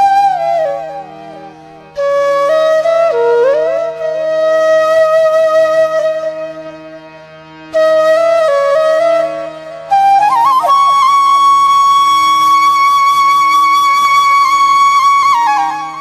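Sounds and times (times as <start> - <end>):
flute music: 0.0 - 16.0.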